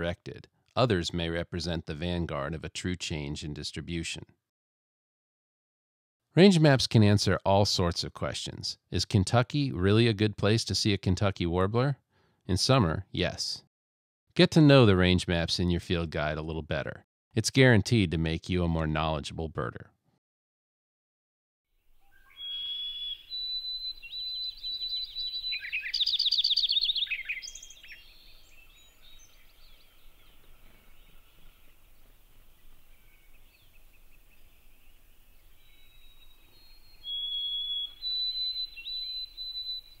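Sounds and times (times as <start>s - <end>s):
birds singing: 21.9s - 40.0s.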